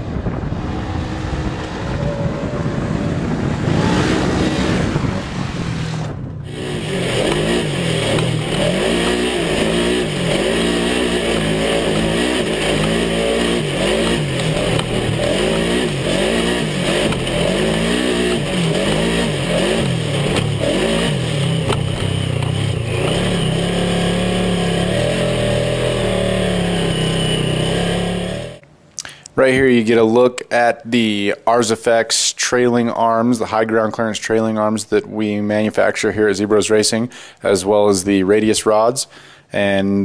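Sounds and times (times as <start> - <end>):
off-road car engine revving: 0.0 - 28.6.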